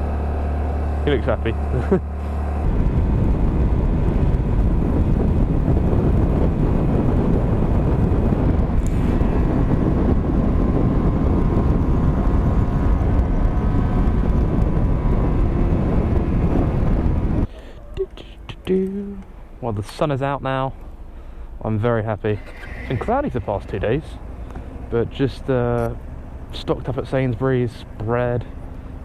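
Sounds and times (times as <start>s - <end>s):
motorcycle engine: 0.0s - 19.4s, 22.2s - 29.0s
wind rush on microphone: 2.3s - 17.6s.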